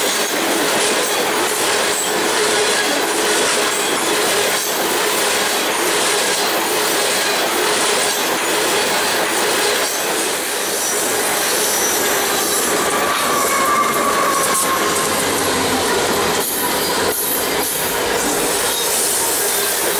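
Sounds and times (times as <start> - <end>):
train cars rolling on rails: 0.0 - 19.9
wheel squeal: 6.9 - 19.9.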